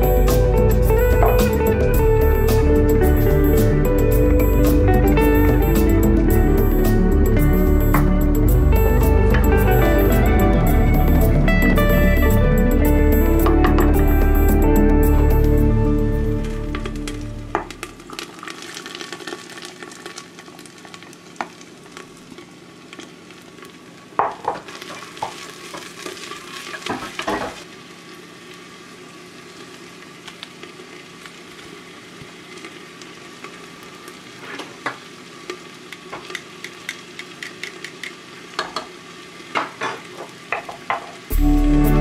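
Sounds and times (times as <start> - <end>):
vegetables sizzling in oil: 13.2 - 42.0.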